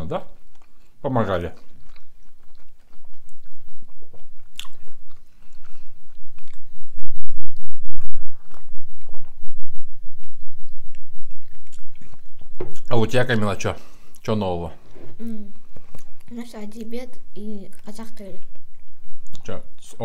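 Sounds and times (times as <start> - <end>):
chewing pizza: 0.3 - 7.0, 10.2 - 13.4.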